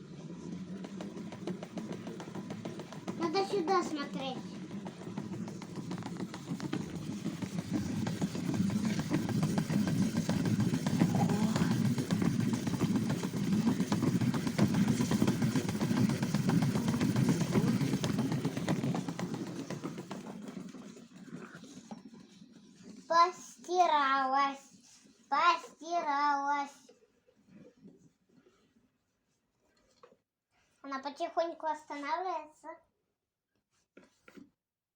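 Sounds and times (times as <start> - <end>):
toy washing machine motor buzzing: 0.0 - 26.5.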